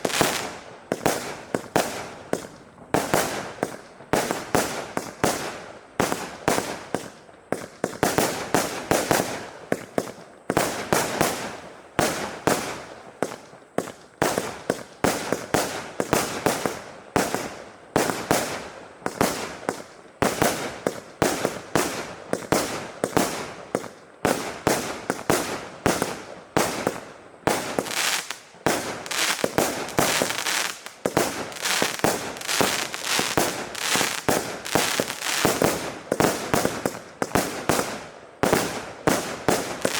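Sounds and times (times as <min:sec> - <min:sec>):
missiles firing cracks and pops: 0:25.9 - 0:39.9.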